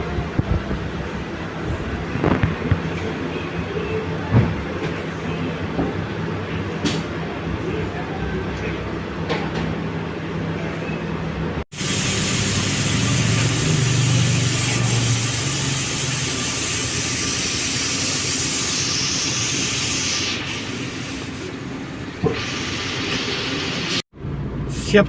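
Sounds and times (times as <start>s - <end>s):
rushing air hiss: 11.7s - 21.5s.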